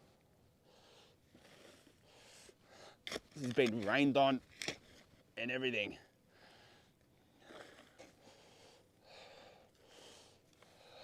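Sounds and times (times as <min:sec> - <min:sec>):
faint breathing: 0:00.6 - 0:03.1, 0:06.3 - 0:11.0.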